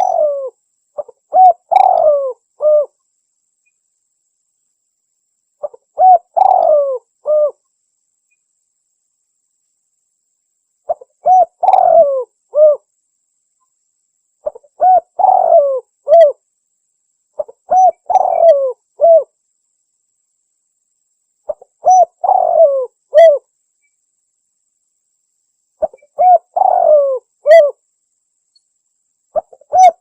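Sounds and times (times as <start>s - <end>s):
dove lure call: 0.0s - 3.0s, 5.6s - 7.6s, 10.9s - 12.8s, 14.4s - 16.4s, 17.4s - 19.3s, 21.5s - 23.5s, 25.8s - 27.8s, 29.3s - 30.0s.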